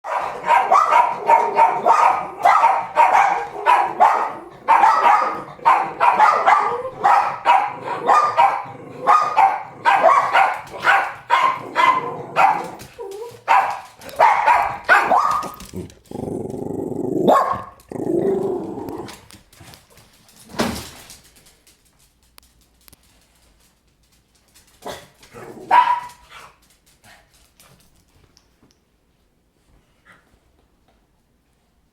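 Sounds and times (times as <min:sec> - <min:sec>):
dogs barking: 0:00.0 - 0:15.6, 0:17.3 - 0:17.9, 0:24.9 - 0:26.3.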